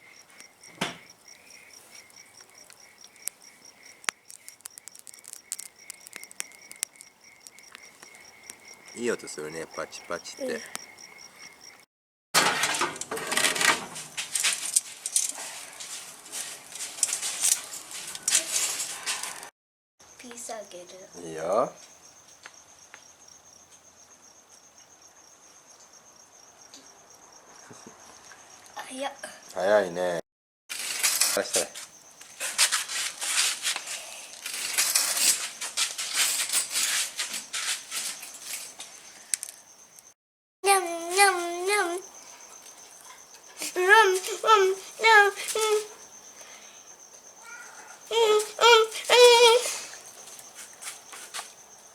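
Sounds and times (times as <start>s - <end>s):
wood fire crackling and popping: 0.0s - 11.6s.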